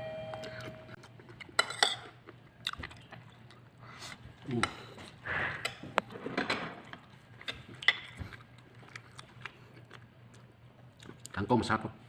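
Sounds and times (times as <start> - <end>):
crunchy chewing: 6.8 - 11.4.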